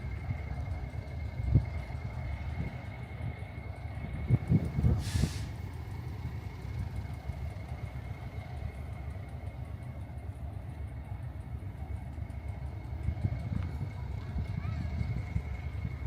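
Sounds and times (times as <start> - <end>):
vehicle engine rumble: 0.0 - 16.0
short hiss: 4.9 - 5.6.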